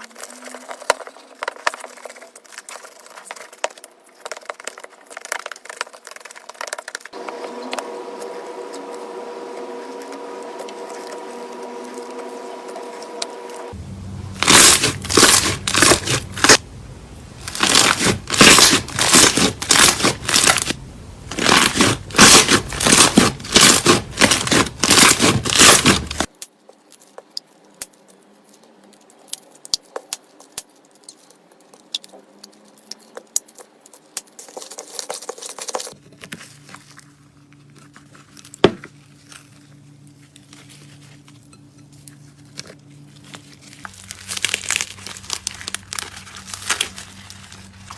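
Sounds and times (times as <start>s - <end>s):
slime crackling when squeezed: 14.3s - 16.6s, 17.3s - 26.3s, 43.2s - 47.9s.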